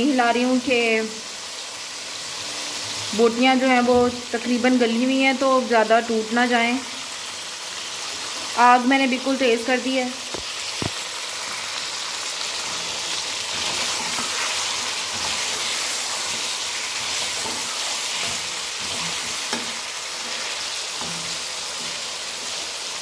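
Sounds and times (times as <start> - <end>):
chicken sizzling in hot oil: 0.0 - 23.0
spatula scraping a pan: 12.6 - 22.8.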